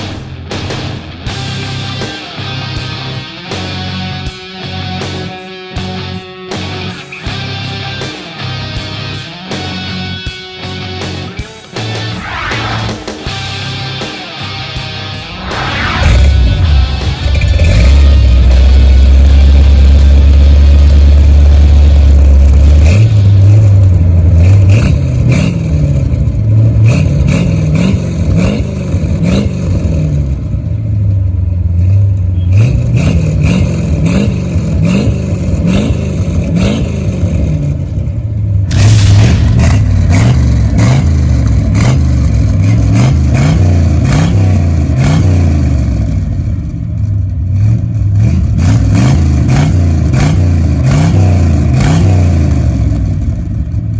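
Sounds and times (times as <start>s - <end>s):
car engine revving: 10.7s - 53.9s
exhaust crackles: 15.1s - 51.9s.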